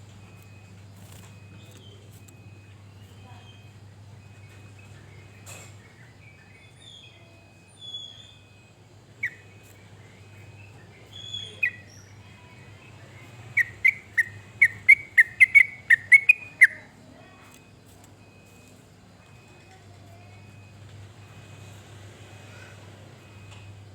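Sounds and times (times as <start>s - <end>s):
bird singing chirps: 0.4s - 18.4s.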